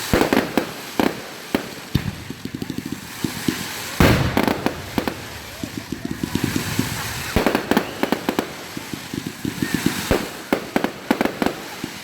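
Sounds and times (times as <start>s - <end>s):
fireworks bangs: 0.0s - 12.0s
fireworks cracking: 0.0s - 12.0s.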